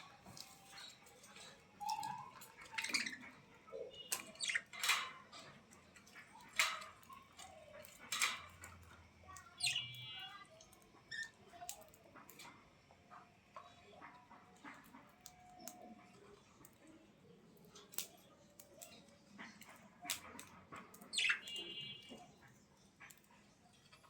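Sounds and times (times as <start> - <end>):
small animals squeaking: 0.5 - 8.3, 9.3 - 11.8, 20.1 - 21.8.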